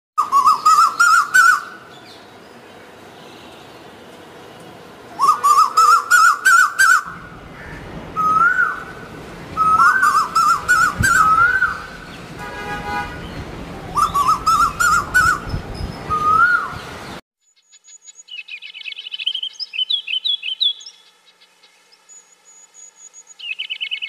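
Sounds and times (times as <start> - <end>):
bird-like whistled calls: 0.2 - 1.7, 5.2 - 7.2, 8.2 - 9.0, 9.6 - 12.0, 14.0 - 16.8.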